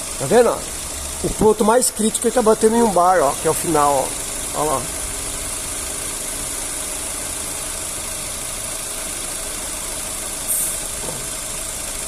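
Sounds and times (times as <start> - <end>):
car engine idling: 0.0 - 12.0
brief high hiss: 10.5 - 10.8.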